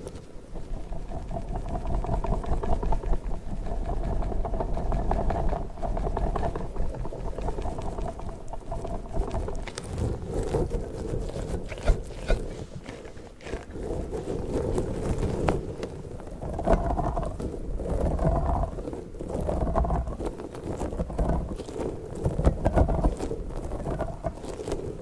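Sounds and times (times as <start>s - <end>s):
small sticky clicks: 6.3s - 15.6s.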